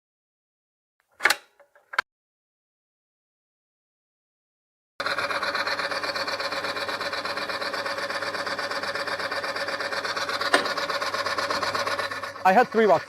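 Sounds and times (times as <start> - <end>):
motor-driven roller whirring: 5.0 - 13.0.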